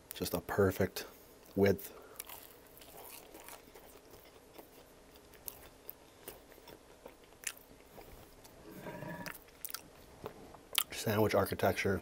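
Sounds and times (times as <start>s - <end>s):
chewing sandwich: 1.4s - 11.0s.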